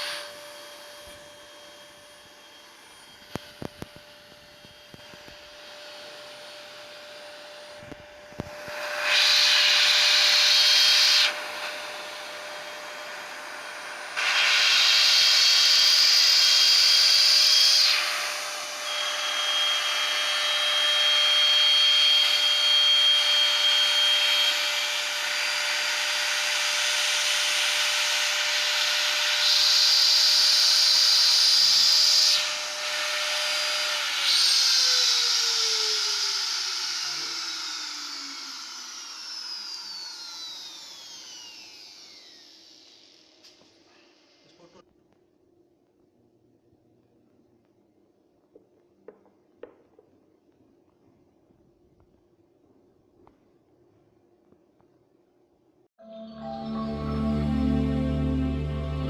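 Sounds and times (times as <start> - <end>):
router bit cutting wood: 0.0 - 43.7
router spindle whine: 0.0 - 44.6.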